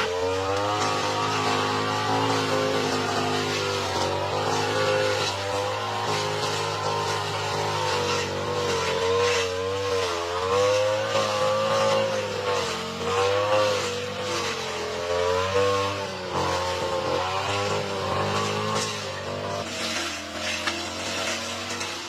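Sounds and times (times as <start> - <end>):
lawn mower cutting thick grass: 0.0 - 22.0.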